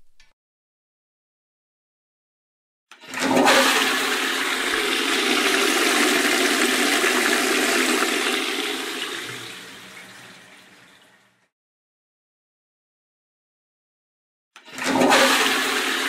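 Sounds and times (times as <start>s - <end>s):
water rushing: 4.2s - 10.8s.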